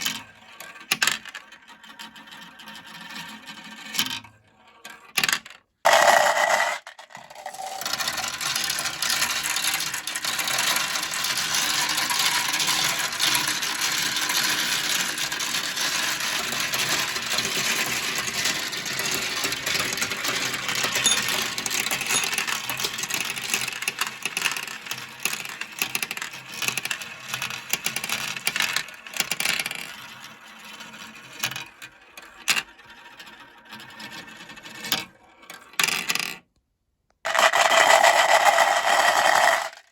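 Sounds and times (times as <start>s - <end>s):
marbles rattling down a track: 5.2s - 30.7s, 37.3s - 39.9s.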